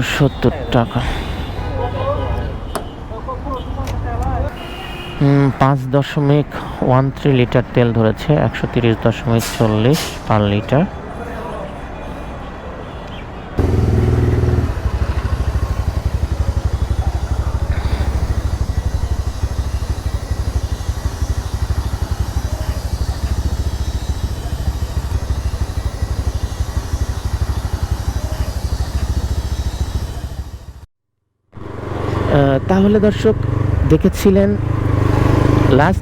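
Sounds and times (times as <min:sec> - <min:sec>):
motorcycle engine running: 0:13.6 - 0:30.9, 0:31.6 - 0:36.0.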